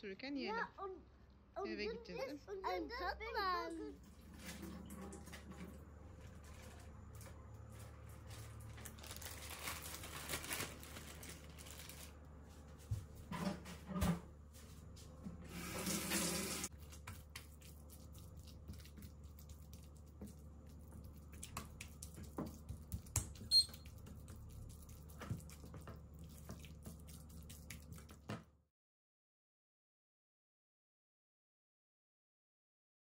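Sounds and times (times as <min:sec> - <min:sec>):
water running from tap: 0:03.7 - 0:05.8, 0:15.4 - 0:28.3.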